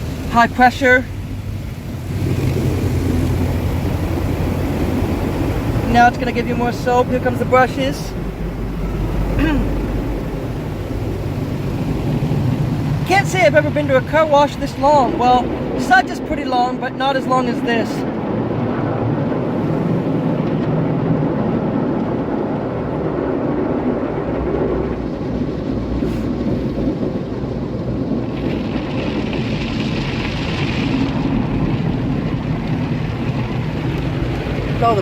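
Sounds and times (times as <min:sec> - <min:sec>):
car wash brushes scrubbing car: 0:00.0 - 0:18.2.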